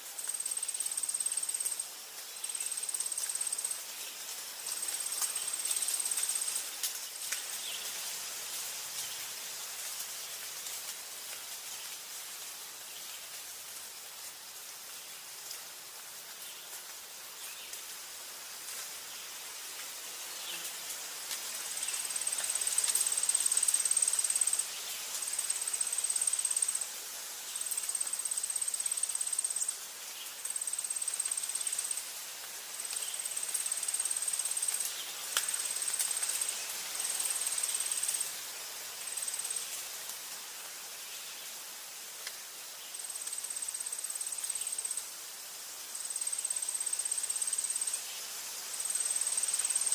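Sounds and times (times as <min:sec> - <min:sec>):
steady forest hiss: 0:00.0 - 0:49.9
faint ticks: 0:21.3 - 0:24.6, 0:32.9 - 0:36.5, 0:42.2 - 0:42.4
insect shrill trill: 0:21.8 - 0:24.7, 0:25.3 - 0:26.9, 0:27.6 - 0:29.8, 0:30.4 - 0:32.0, 0:32.9 - 0:38.2, 0:42.9 - 0:45.0, 0:46.0 - 0:48.1, 0:48.8 - 0:49.9.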